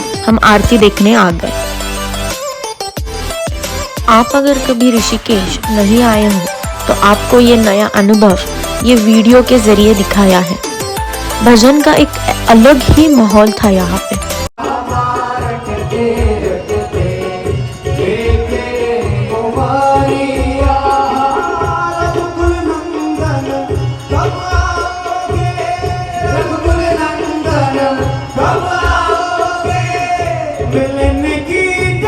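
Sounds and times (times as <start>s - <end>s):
jingling percussion: 0.0s - 32.0s
steady drum beat: 0.0s - 32.0s.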